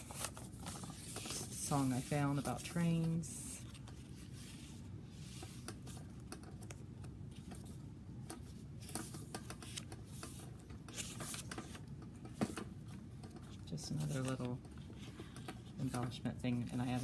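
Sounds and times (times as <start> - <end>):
paper rustling: 0.0 - 7.8, 8.4 - 11.8
low room hum: 0.0 - 17.0.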